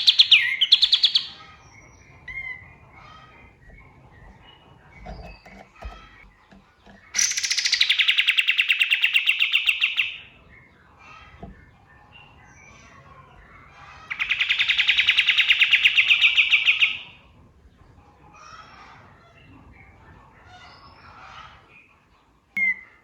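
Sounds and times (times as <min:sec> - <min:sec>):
bird rattling trills: 0:02.2 - 0:10.2.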